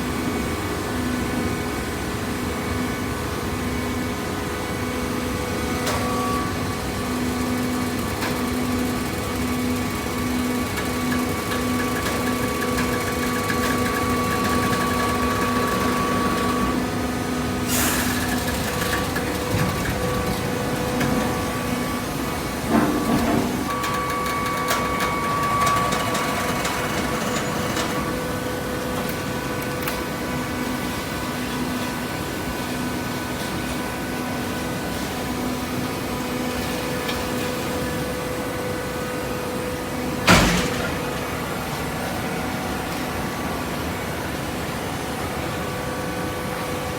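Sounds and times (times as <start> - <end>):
metallic clunk: 40.3 - 41.5.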